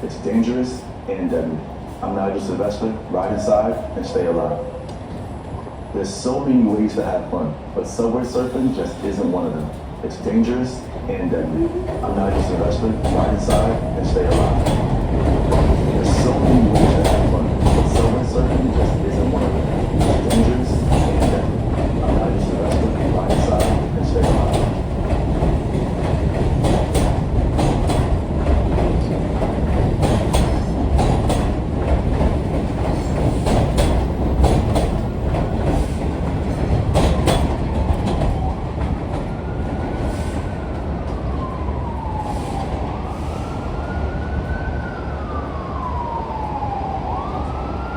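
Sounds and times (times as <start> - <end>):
train rumbling: 0.0 - 47.9
wheels clicking over rail joints: 11.6 - 39.3
siren wailing: 39.3 - 47.9.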